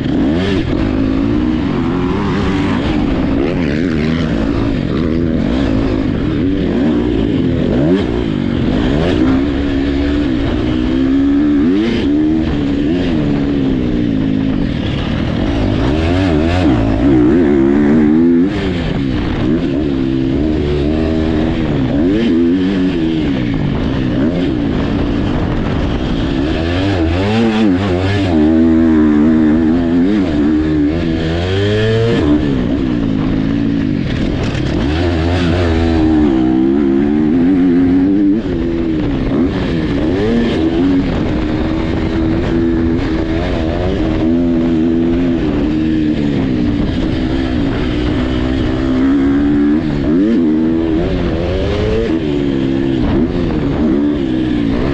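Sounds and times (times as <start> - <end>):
dirt bike engines racing: 0.0 - 54.9.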